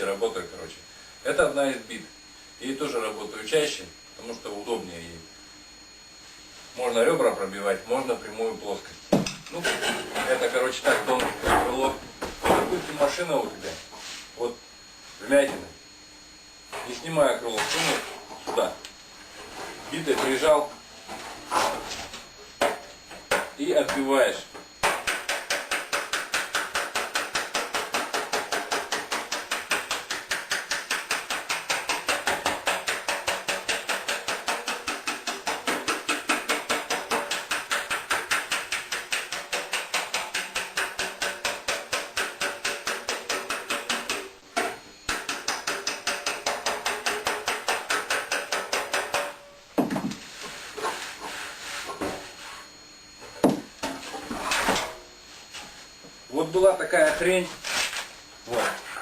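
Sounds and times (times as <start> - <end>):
hammer tapping on metal: 24.8 - 49.4.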